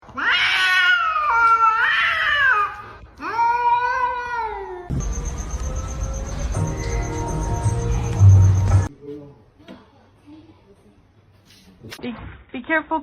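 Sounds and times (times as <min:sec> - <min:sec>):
cat yowling: 0:00.2 - 0:04.9.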